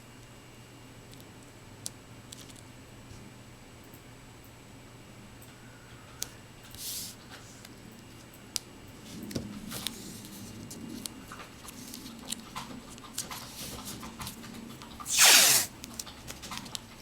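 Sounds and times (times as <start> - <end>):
scraping rustle: 15.1 - 15.7.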